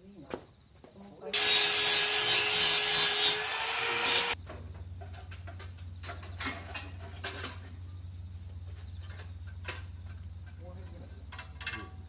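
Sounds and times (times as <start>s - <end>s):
power tool running: 1.4s - 4.4s
steady low hum: 4.2s - 12.0s.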